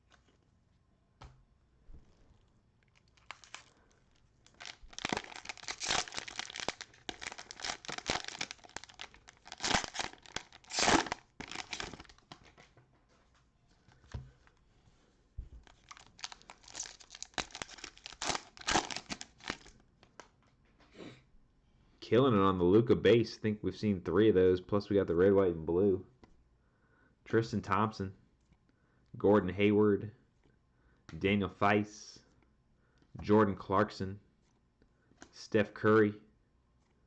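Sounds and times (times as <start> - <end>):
cellophane wrapper crinkling and tearing: 2.8 - 12.7, 15.6 - 20.2.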